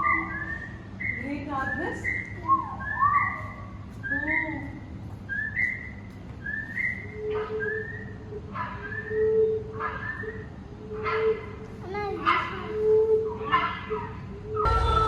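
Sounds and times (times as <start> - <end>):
lower arching whistles: 0.0 - 11.0
short rising bird whistle: 5.3 - 8.2.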